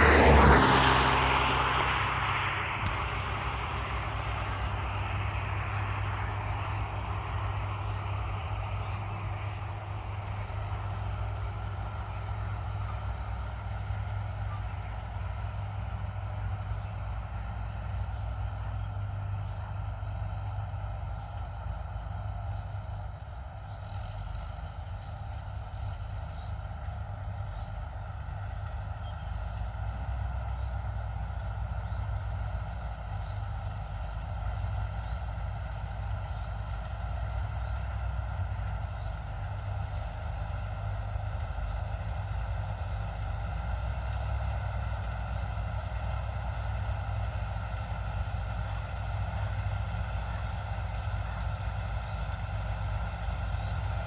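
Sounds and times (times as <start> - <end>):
diesel engine running under load: 0.0 - 54.0.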